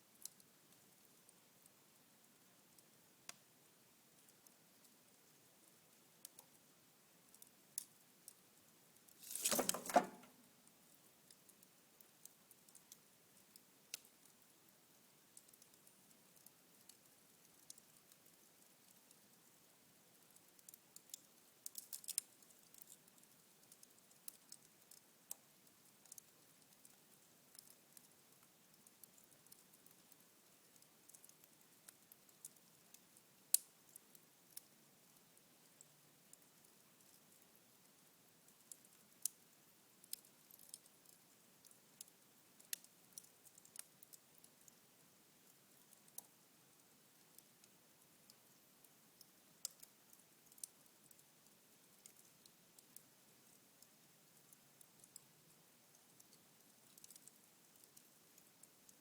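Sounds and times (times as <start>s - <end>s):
soft fire hiss: 0.0s - 59.0s
embers crackling and popping: 9.0s - 10.4s, 11.2s - 14.4s, 15.1s - 19.5s, 20.1s - 34.7s, 38.5s - 44.8s, 45.4s - 53.5s, 54.4s - 55.3s, 56.0s - 58.9s
embers crackling: 9.2s - 10.4s.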